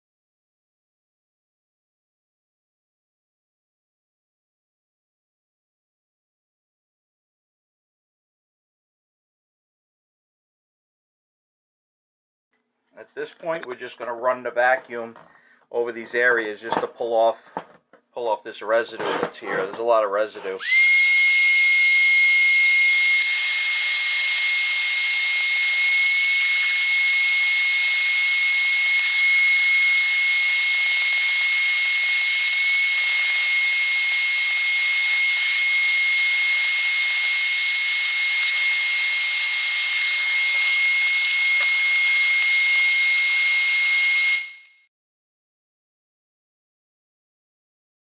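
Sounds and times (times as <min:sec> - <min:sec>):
vacuum cleaner running: 0:20.6 - 0:44.6.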